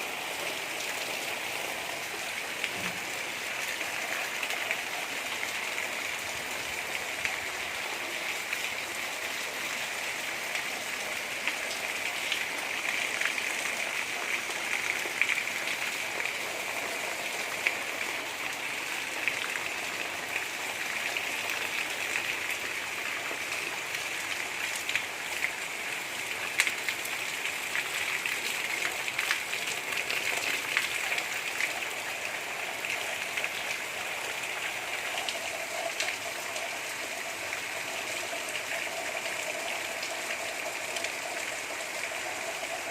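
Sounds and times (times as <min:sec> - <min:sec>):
gentle rain patter: 0:00.0 - 0:42.9.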